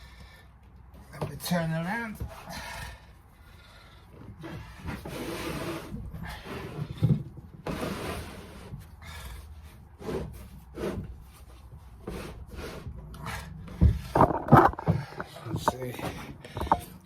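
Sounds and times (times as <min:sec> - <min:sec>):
rubbing and scraping on machine: 0:04.3 - 0:16.8.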